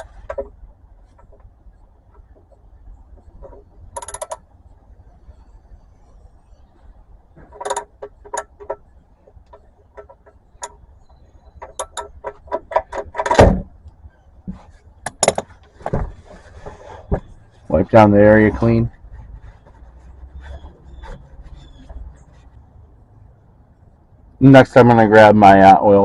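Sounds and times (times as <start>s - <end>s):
ratchet clicks: 3.9s - 4.5s.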